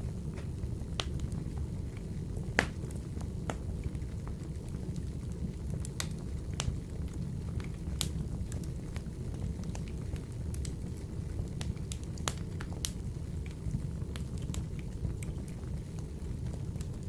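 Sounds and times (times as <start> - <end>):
logs crackling and popping: 0.0 - 17.0
low rumble of stove flames: 0.0 - 17.0.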